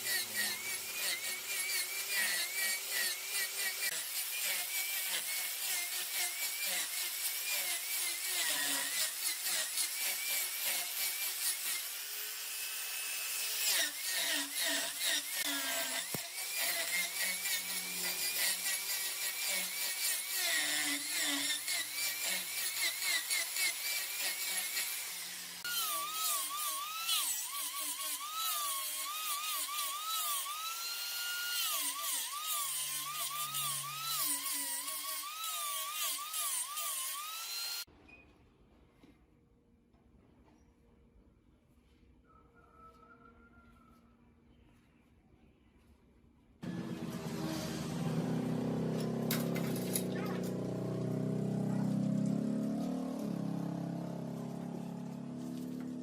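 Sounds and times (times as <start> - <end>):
lathe tool scraping spinning wood: 46.6 - 50.7.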